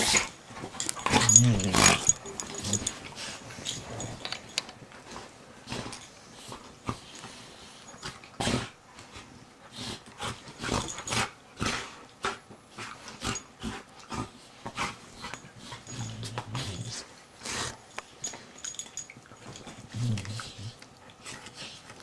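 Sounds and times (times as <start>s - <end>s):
dog growling low: 1.0s - 4.2s, 15.8s - 17.7s, 19.8s - 20.8s.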